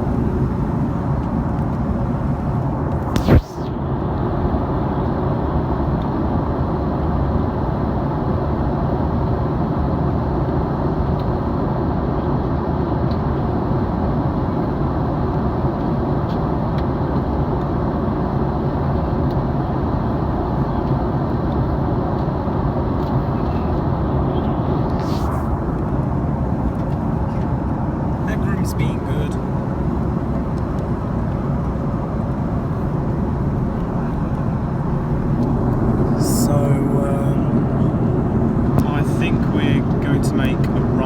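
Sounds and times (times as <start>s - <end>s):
airflow over fuselage: 0.0s - 4.3s, 23.0s - 41.0s
jet engines rushing: 0.0s - 5.8s, 19.8s - 41.0s
faint steady hum: 22.9s - 41.0s.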